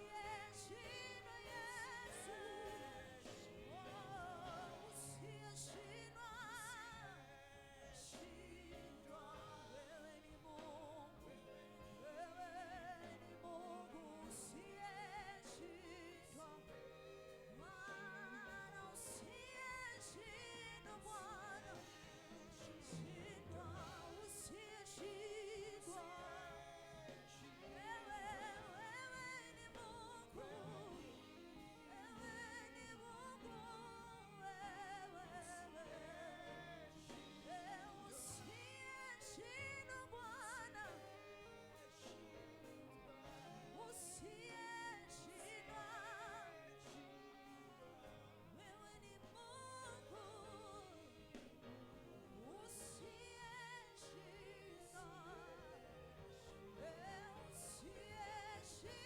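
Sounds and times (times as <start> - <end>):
person singing with vibrato: 0.0 - 59.0.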